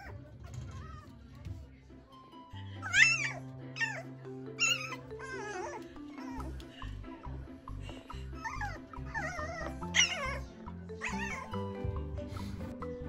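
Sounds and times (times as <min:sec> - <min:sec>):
background music with steady beat: 0:00.1 - 0:13.0
puppy whining: 0:02.8 - 0:06.8, 0:08.2 - 0:11.9.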